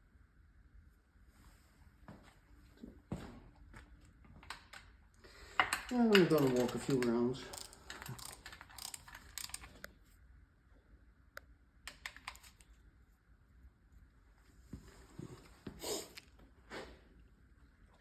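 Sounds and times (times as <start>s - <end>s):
hand tools clicking and tapping: 5.5s - 9.8s.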